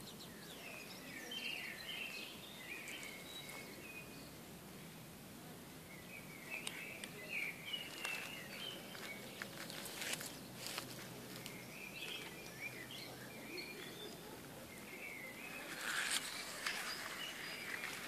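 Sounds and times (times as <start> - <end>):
outdoor hiss: 0.0 - 18.0
songbird warbling: 11.4 - 18.0.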